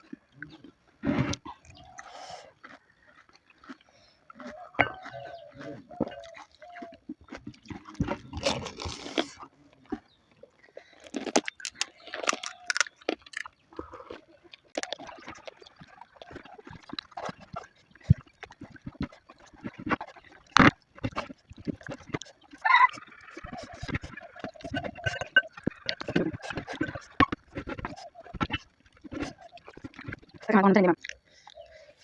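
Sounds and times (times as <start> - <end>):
slurping and chewing: 0.0 - 32.0
crisp shells crunching: 6.2 - 9.4, 10.8 - 13.6.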